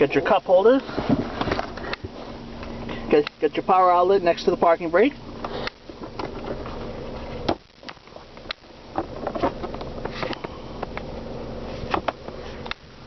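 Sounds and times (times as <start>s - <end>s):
car engine idling: 0.0s - 13.0s
clicks and knocks of cabin fittings: 5.4s - 6.7s, 7.4s - 11.1s, 11.9s - 12.8s.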